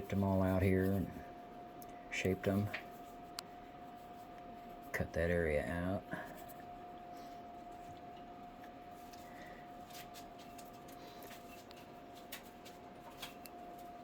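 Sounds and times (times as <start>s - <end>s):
faint high hum: 0.0s - 14.0s.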